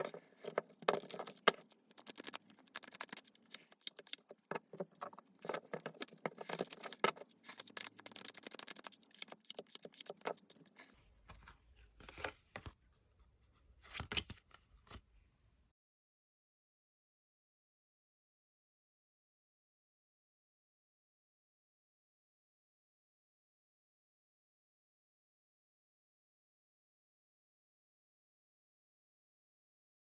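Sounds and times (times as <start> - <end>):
cards being shuffled by hand: 0.0 - 11.4.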